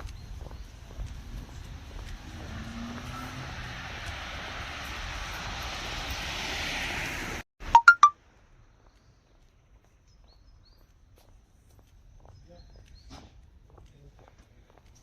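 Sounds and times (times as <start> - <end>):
steady outdoor noise: 0.0 - 15.0
loud electronic beeps: 7.8 - 8.1.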